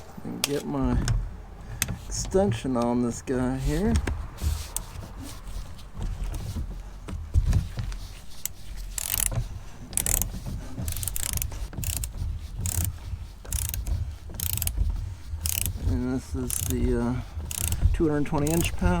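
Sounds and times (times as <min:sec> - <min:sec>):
hand ratchet clicking: 0:08.4 - 0:19.0.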